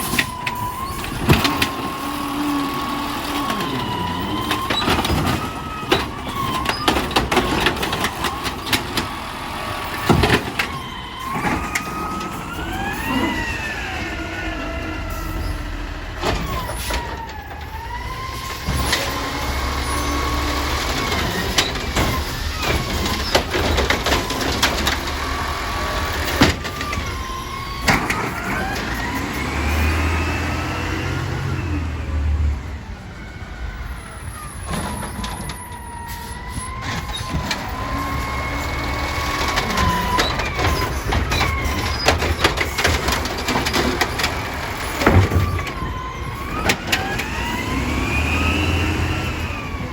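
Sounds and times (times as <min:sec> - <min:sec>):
truck engine revving: 0:00.0 - 0:33.0, 0:33.8 - 0:49.9
hydraulic system whining: 0:00.0 - 0:49.9
metal clanks and bangs: 0:36.5 - 0:47.7.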